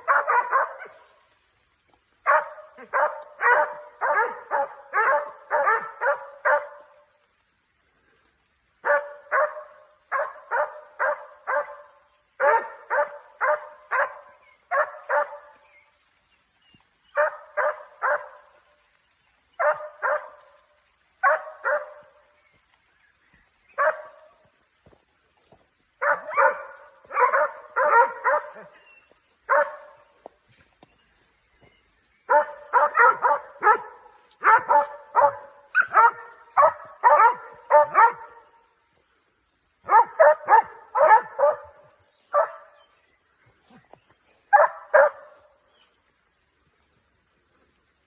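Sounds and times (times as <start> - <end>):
dogs barking: 0.0 - 1.1, 2.2 - 7.0, 8.8 - 15.6, 17.2 - 18.6, 19.6 - 20.6, 21.2 - 22.2, 23.8 - 24.3, 26.0 - 28.8, 29.5 - 30.1, 32.3 - 38.6, 39.8 - 42.9, 44.5 - 45.5.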